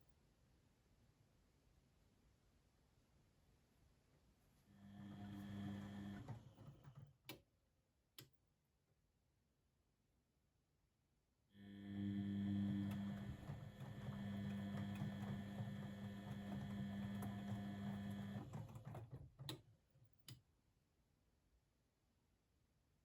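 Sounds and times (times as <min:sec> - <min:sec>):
washing machine motor hum: 0:04.7 - 0:07.0, 0:11.6 - 0:19.6.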